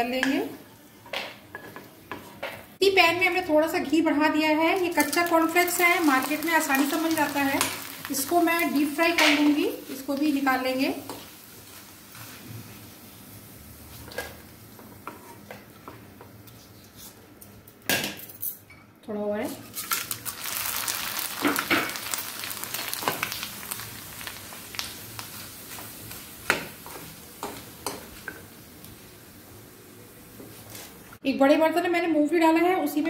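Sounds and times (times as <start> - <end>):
food deep-frying in oil: 4.4 - 14.7, 19.6 - 31.0
loud sizzling: 4.7 - 12.6, 19.9 - 30.3.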